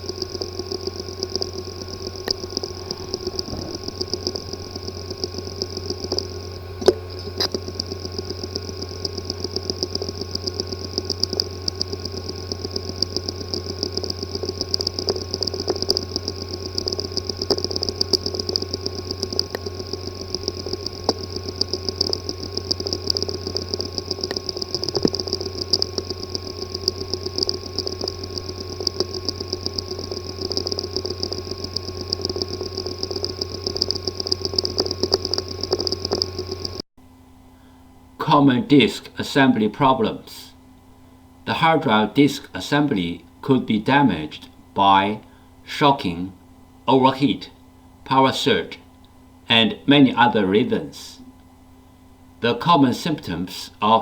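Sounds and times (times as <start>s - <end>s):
hard drive sharp click: 0.0s - 36.8s
hard drive ticking: 0.0s - 37.2s
hard drive humming and whining: 0.0s - 54.0s.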